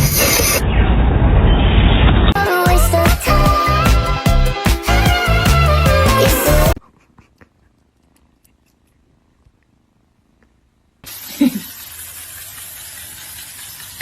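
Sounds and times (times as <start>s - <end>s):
music: 2.4s - 6.8s.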